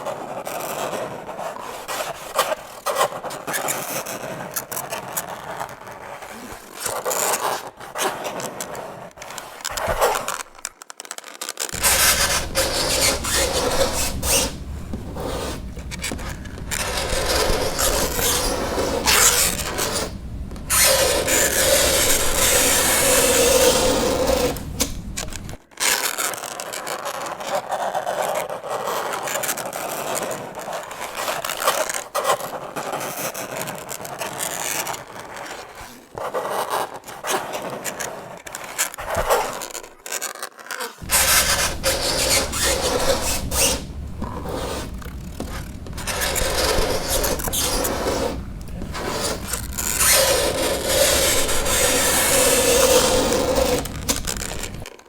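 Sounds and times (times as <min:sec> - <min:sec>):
fingernails scraping chalkboard: 0:11.7 - 0:25.6, 0:41.0 - 0:54.9.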